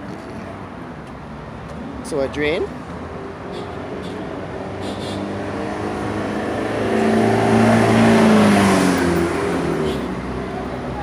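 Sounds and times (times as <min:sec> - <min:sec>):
vehicle engine passing by: 0:03.9 - 0:11.0.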